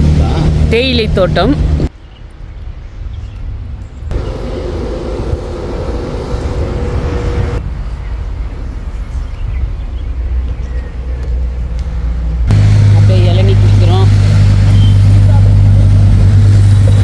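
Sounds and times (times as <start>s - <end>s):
car engine and road rumble: 0.0s - 1.9s, 4.1s - 17.0s
rushing noise: 4.1s - 8.6s, 12.4s - 17.0s
steady hum: 12.4s - 17.0s.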